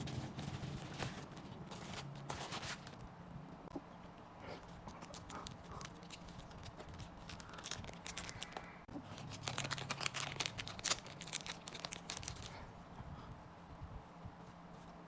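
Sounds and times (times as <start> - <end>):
card packaging crinkling and tearing: 4.9 - 12.6.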